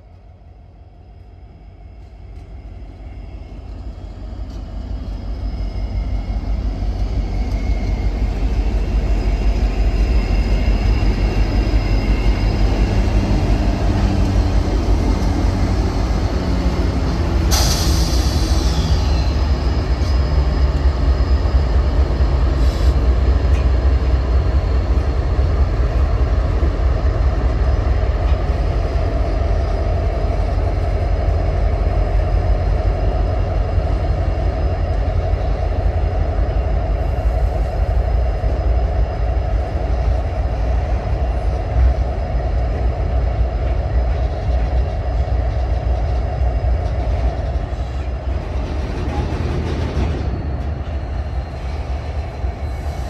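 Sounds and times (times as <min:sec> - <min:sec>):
diesel locomotive engine: 0:00.0 - 0:53.0
train wheels rumbling on rails: 0:00.0 - 0:53.0
sharp high-pitched squeal: 0:02.6 - 0:13.7.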